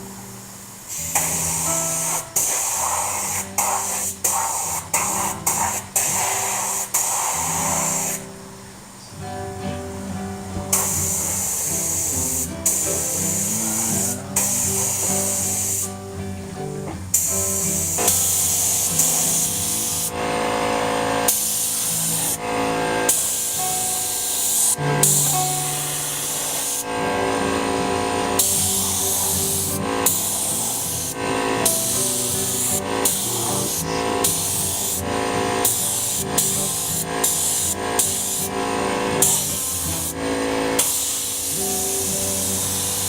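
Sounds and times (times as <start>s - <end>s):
spray paint can hissing: 0.9s - 8.2s, 10.7s - 16.0s, 17.1s - 20.2s, 20.8s - 43.0s
music playing: 9.2s - 43.0s.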